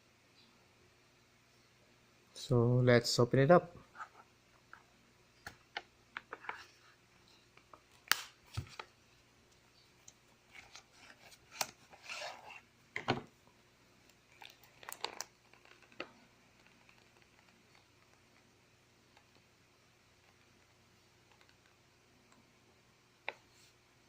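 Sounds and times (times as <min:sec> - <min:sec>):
packaging being opened by hand: 0:14.1 - 0:18.2.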